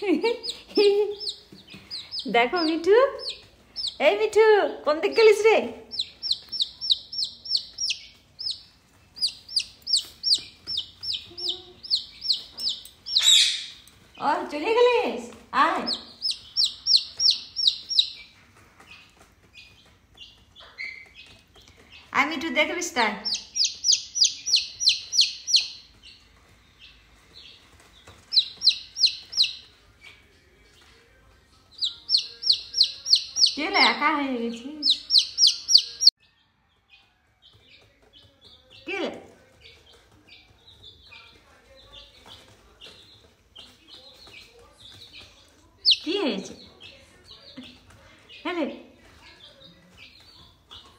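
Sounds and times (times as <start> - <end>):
parakeet screeching: 13.2 - 13.8.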